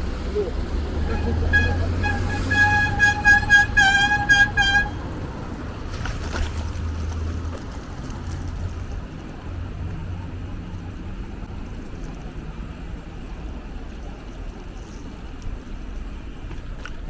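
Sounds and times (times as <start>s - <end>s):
street traffic rumble: 0.0s - 17.0s
car horn honking: 0.7s - 5.3s.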